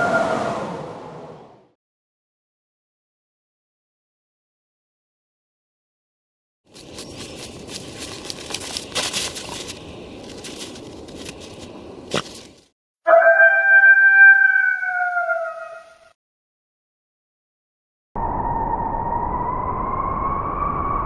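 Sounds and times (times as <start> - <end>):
wolf howl: 13.1 - 16.1.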